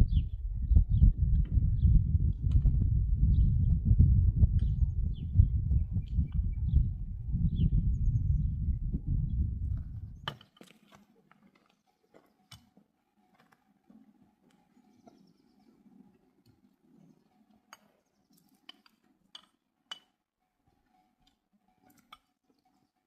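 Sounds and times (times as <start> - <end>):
loud low rumble: 0.0 - 10.2.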